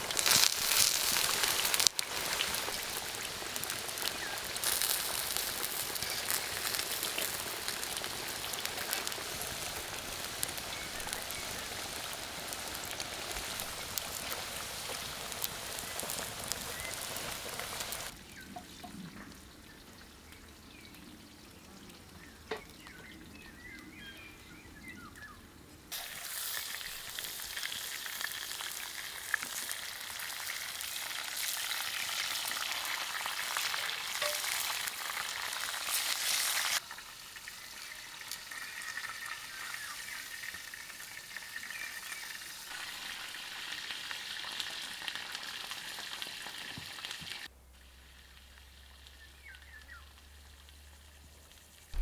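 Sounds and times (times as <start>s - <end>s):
food sizzling in hot oil: 0.0s - 18.4s, 25.9s - 52.0s.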